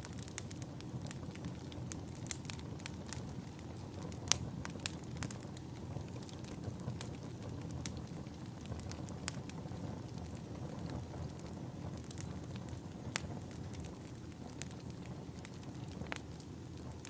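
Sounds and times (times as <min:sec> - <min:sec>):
sharp pops of burning logs: 0:00.0 - 0:17.0
wood fire crackling: 0:00.0 - 0:17.0.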